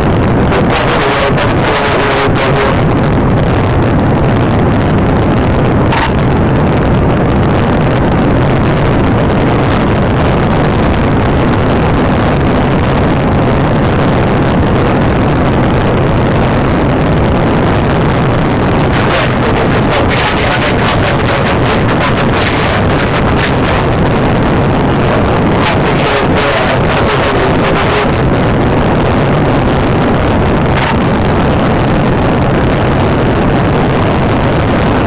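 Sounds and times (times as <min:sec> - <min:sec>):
car driving fast: 0:05.9 - 0:06.4, 0:30.7 - 0:31.1.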